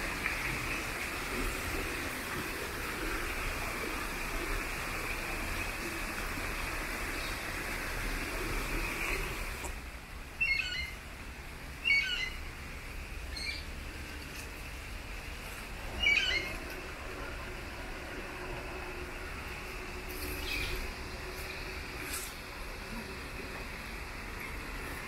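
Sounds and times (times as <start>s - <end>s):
steady rushing hiss: 0.0s - 25.0s
bird chirping calls: 10.4s - 11.0s, 11.8s - 12.4s, 13.3s - 13.7s, 15.9s - 16.6s.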